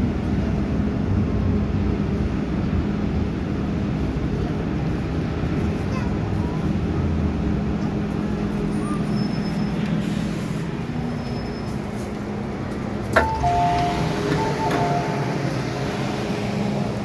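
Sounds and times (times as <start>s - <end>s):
train carriage rumbling: 0.0s - 17.0s
two-tone electronic chime: 13.2s - 15.3s.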